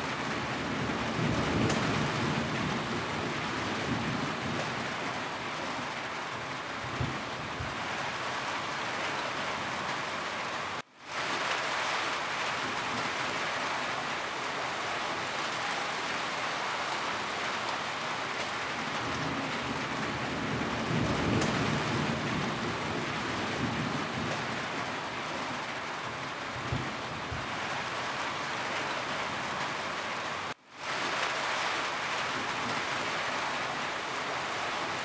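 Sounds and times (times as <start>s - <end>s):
rain on a roof: 0.0s - 35.0s
thunder rumble: 0.1s - 5.3s, 17.9s - 24.9s.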